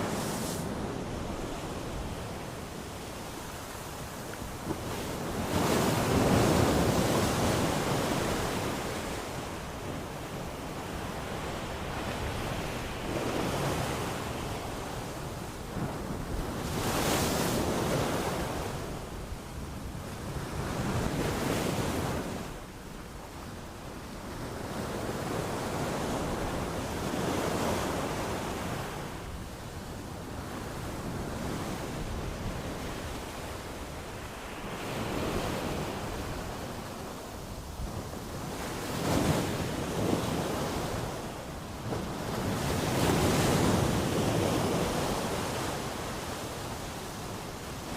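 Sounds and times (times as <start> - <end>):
sea waves breaking on shore: 0.0 - 19.1.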